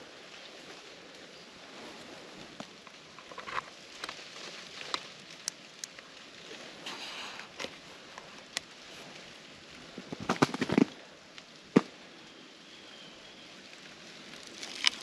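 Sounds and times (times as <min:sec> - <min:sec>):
ice cracking and crunching: 0:09.9 - 0:11.0, 0:14.3 - 0:15.0.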